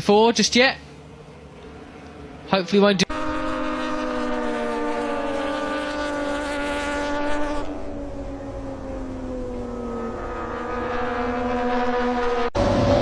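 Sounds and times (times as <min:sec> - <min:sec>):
racing motorcycle engine revving: 0:03.0 - 0:13.0.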